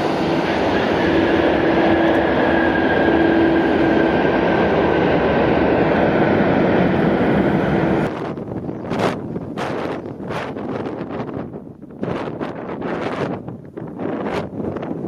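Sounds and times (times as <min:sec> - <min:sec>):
jet engines running with whine: 0:00.0 - 0:15.0
wind buffeting microphone: 0:00.0 - 0:15.0.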